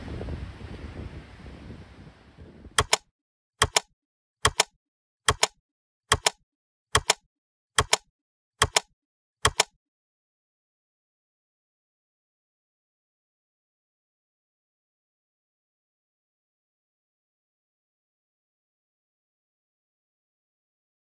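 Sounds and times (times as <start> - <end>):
surf: 0.0 - 2.7
wind: 0.0 - 4.7
sharp double clicks: 2.8 - 4.7, 5.3 - 6.4, 7.0 - 7.2, 7.8 - 9.7.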